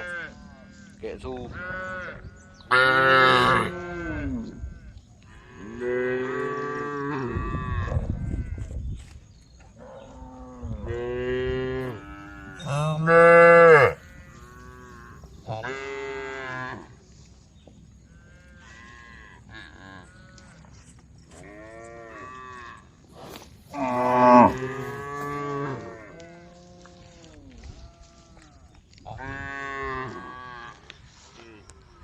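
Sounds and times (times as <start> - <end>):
cows mooing: 1.6 - 4.6, 9.8 - 16.9, 23.7 - 27.3.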